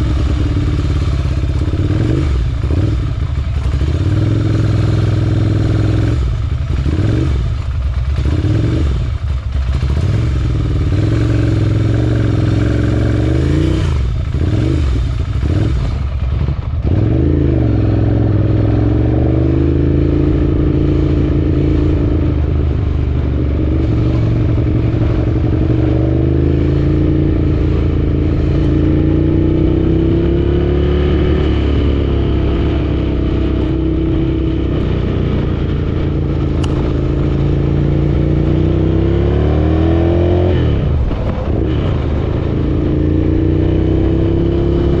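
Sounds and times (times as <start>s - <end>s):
motorcycle engines running: 0.0s - 45.0s.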